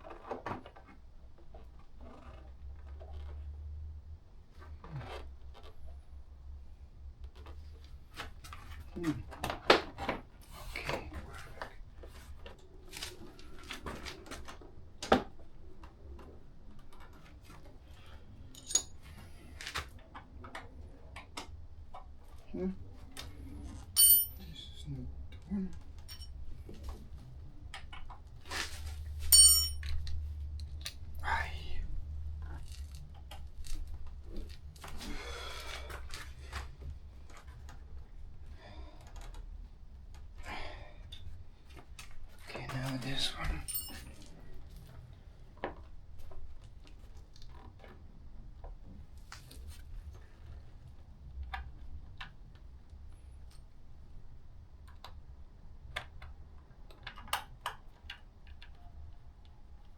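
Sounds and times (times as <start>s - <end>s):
small parts clicking and rustling: 18.4s - 19.9s
metal parts clicking and knocking: 18.5s - 19.0s, 24.0s - 24.4s, 29.3s - 30.0s
metallic ring: 18.6s - 18.9s, 24.0s - 24.5s, 29.3s - 30.0s, 43.6s - 44.0s
low steady hum: 22.3s - 28.1s, 29.1s - 37.7s, 40.2s - 45.2s.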